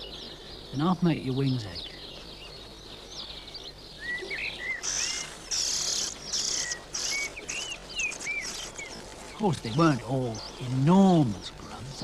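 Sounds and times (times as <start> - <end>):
high-pitched hissy bird calls: 0.0 - 12.0
nestlings chirping: 0.0 - 12.0.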